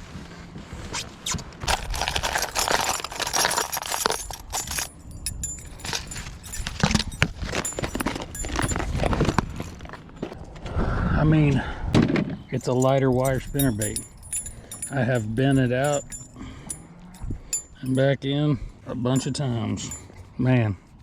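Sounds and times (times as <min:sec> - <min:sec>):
clicks and knocks of fishing gear: 0:01.6 - 0:10.4
light metallic jangling: 0:01.6 - 0:10.4, 0:12.5 - 0:18.2, 0:19.1 - 0:20.5.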